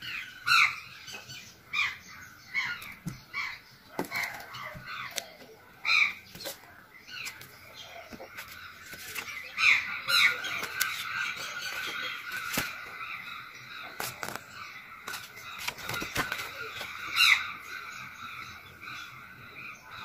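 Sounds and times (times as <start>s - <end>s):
birds chirping: 0.0s - 20.0s
paperback book being handled: 4.0s - 5.6s, 6.2s - 13.0s, 13.9s - 17.0s.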